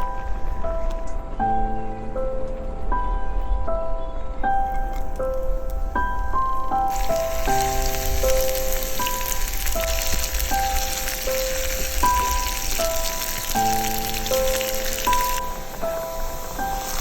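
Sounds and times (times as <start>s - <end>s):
food sizzling in oil: 6.9s - 17.0s.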